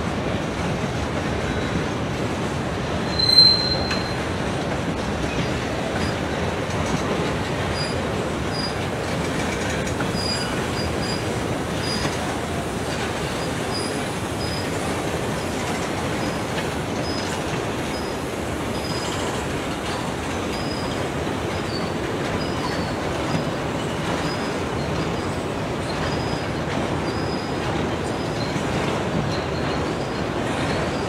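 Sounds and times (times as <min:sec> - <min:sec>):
railroad cars rumbling on rails: 0:00.0 - 0:31.0
high-pitched wheel squeals: 0:03.0 - 0:04.2.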